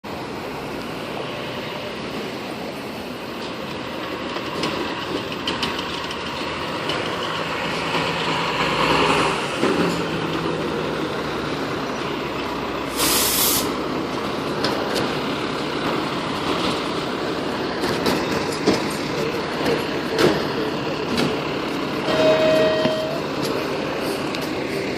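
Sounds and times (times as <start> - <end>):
diesel fire engine idling: 0.1 - 24.9
air brakes hissing: 12.8 - 13.8.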